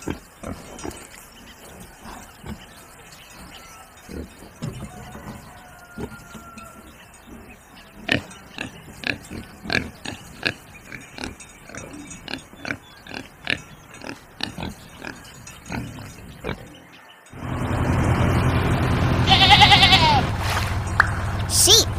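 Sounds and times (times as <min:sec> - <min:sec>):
pigs grunting: 0:00.0 - 0:17.0.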